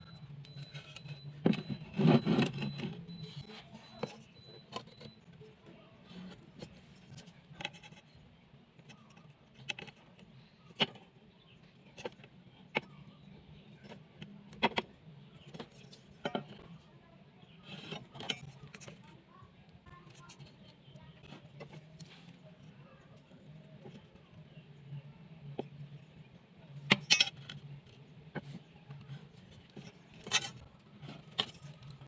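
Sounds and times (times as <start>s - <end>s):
tools knocking and clicking: 26.9s - 27.6s.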